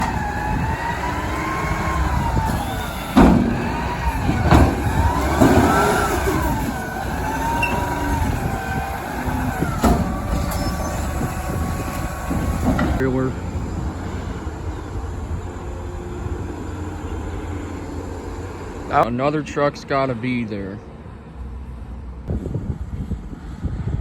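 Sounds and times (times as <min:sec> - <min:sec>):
metal clanks: 0:00.0 - 0:13.2
garbage truck engine whining: 0:00.0 - 0:19.1.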